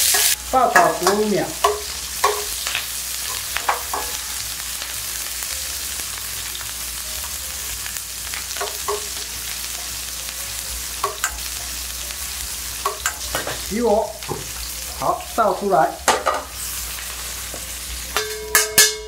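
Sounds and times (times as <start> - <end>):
metal spatula scraping a pan: 0.0 - 4.5
vegetables sizzling in hot oil: 0.0 - 19.0.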